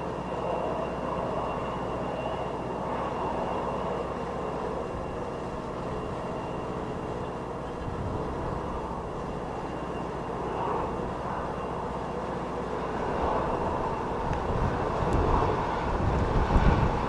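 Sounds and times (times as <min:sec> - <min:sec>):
jet engines running: 0:00.0 - 0:17.0
wind buffeting microphone: 0:04.9 - 0:09.7, 0:12.8 - 0:17.0.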